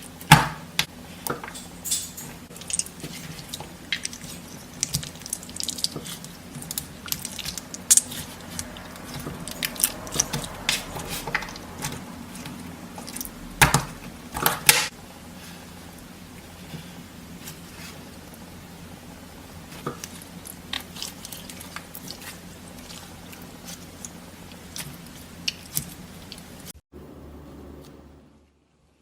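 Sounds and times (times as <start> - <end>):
slime squelching: 2.5 - 14.9, 19.6 - 26.7.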